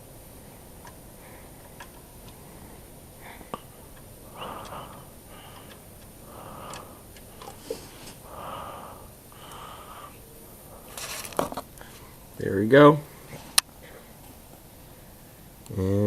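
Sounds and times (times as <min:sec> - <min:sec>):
person breathing heavily: 0:00.2 - 0:12.4
faint clicks: 0:03.3 - 0:08.2, 0:09.4 - 0:10.2.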